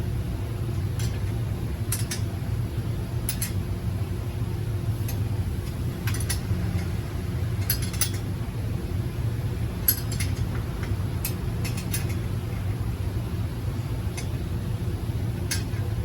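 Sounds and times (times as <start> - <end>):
steady low hum: 0.0 - 16.0
metallic clinks and taps: 3.3 - 3.6, 7.6 - 8.2, 9.8 - 12.3, 15.4 - 15.8.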